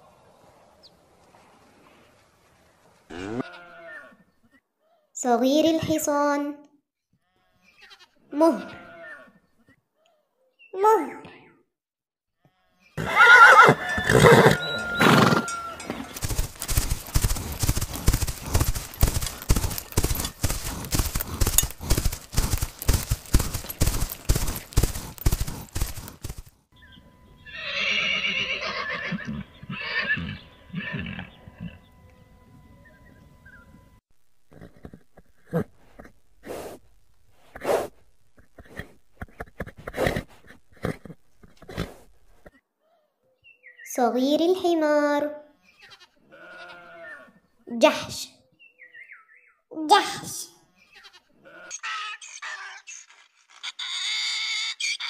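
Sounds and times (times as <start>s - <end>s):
horses neighing: 3.1s - 4.1s, 13.0s - 26.5s, 27.5s - 31.8s, 34.5s - 36.8s, 37.5s - 42.6s, 46.3s - 47.3s
hooves galloping on grass: 13.0s - 26.6s, 34.1s - 42.6s.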